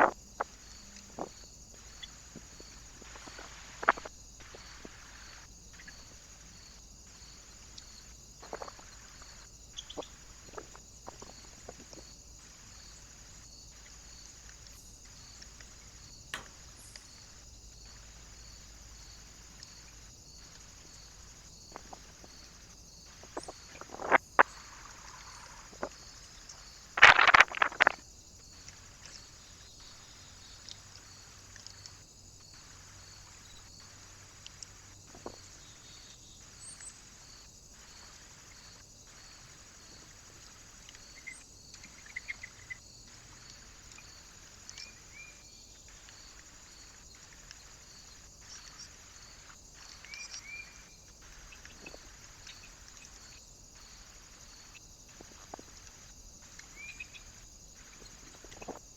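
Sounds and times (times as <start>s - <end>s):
electronic hiss: 0.0s - 58.7s
sharp knocks: 16.4s - 16.7s.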